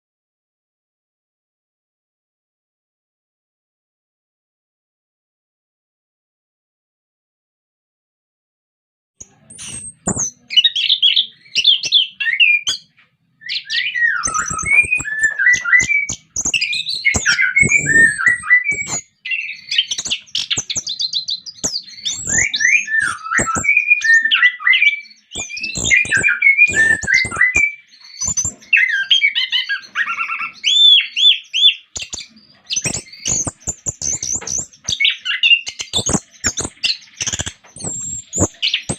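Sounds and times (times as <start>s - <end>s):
thrush singing whistled phrases: 9.2s - 38.9s.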